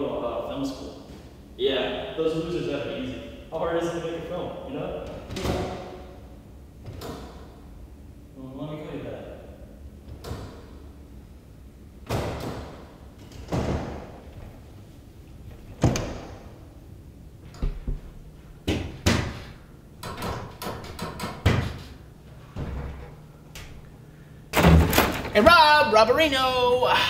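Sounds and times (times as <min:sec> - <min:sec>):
glass doors banging and rattling: 0:05.0 - 0:06.1, 0:12.0 - 0:14.6, 0:15.6 - 0:16.6, 0:18.6 - 0:23.2, 0:24.5 - 0:25.7.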